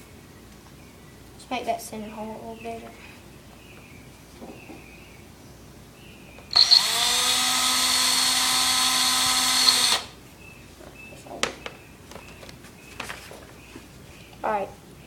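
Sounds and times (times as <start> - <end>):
cordless drill whining: 6.5 - 10.2.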